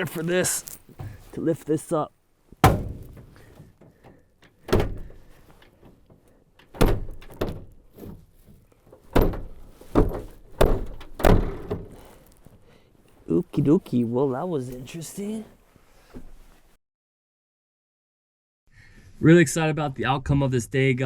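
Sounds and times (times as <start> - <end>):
handling rustle: 0.0 - 16.8
hatch thuds and knocks: 2.6 - 12.4.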